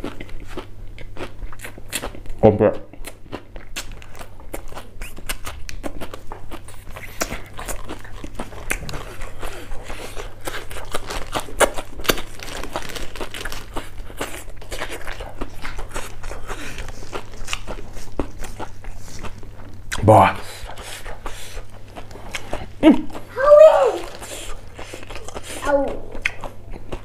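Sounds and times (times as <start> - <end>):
crisp crunching of raw leaves: 10.4 - 14.3.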